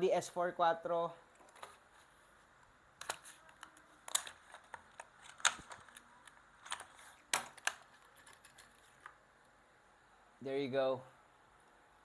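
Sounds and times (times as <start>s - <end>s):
plastic packaging clicks and crackles: 3.0s - 9.2s.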